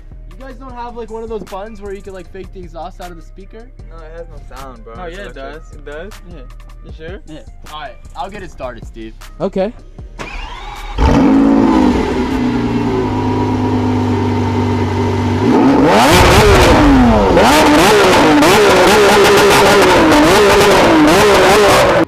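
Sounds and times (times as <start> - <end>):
sports car engine revving: 10.2 - 22.0.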